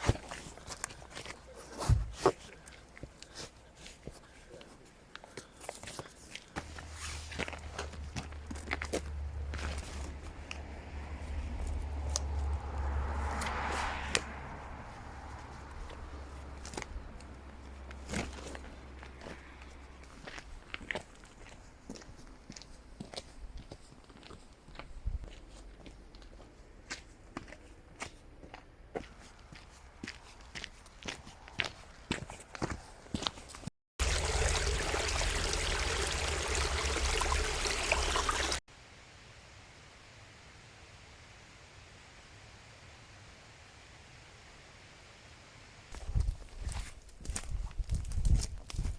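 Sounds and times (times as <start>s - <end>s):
rustling: 0.0s - 19.6s
footsteps: 0.0s - 33.7s, 45.9s - 48.9s
stream rushing over rocks: 34.0s - 38.6s.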